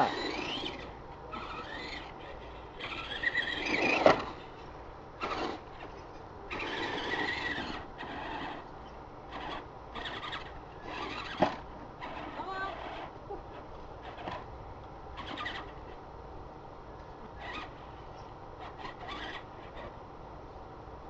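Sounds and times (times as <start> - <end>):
electric toy truck motors whining: 0.0 - 14.5, 15.1 - 16.0, 17.4 - 20.0.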